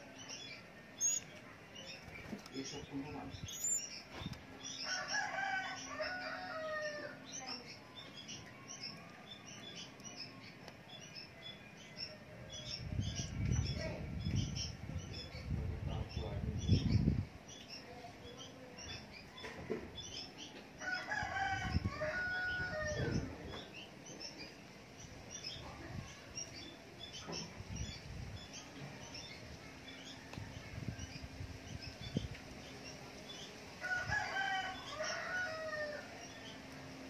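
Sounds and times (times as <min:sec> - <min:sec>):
faint high chirps: 0:00.2 - 0:02.1, 0:03.4 - 0:04.0.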